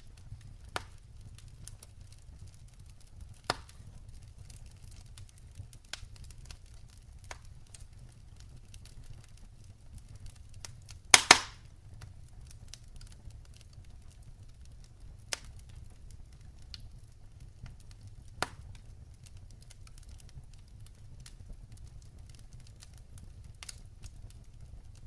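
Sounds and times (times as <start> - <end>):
firewood crackling: 0.0 - 25.0
low steady fire rumble: 0.0 - 25.0
loud wood pops: 0.7 - 1.0, 3.4 - 3.8, 11.1 - 11.7.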